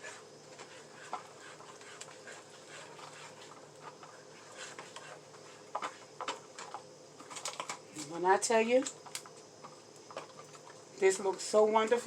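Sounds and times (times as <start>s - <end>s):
spatula scraping a pan: 0.0s - 6.1s.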